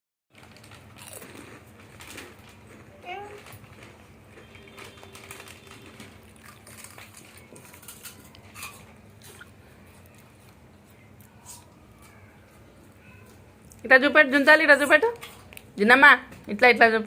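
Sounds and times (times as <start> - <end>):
child eating a crunchy snack: 0.4 - 13.8.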